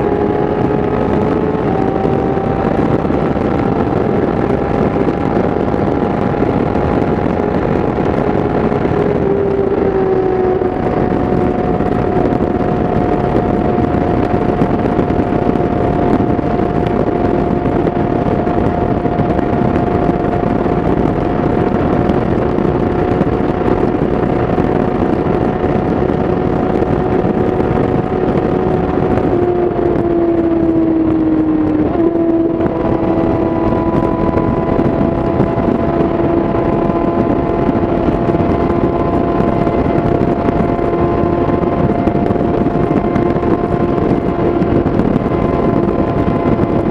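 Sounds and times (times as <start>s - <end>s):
motorcycle engine at high revs: 0.0s - 46.9s
wind and road noise: 0.0s - 46.9s.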